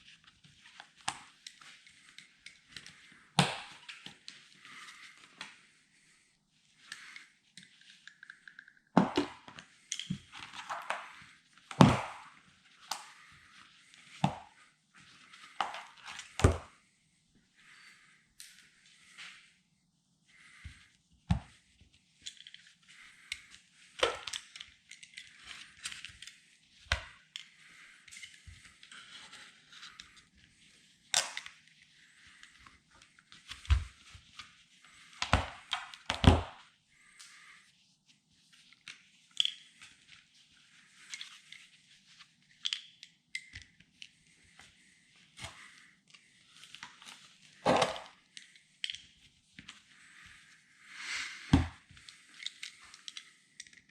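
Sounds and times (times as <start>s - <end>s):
sharp knocks and cracks: 11.8s - 12.2s.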